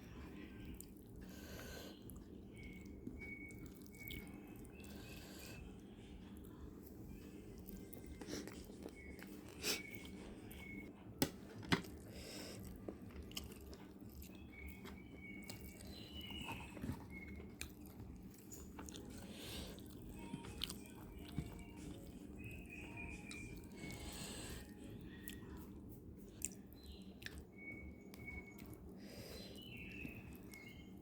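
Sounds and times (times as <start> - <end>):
person chewing crunchy food: 7.4 - 10.8, 11.8 - 22.2, 26.2 - 30.8.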